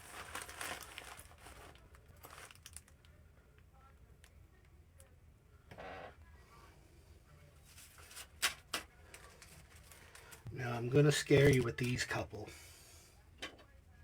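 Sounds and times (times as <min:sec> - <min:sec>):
packaging rustling and crinkling: 0:00.0 - 0:03.0.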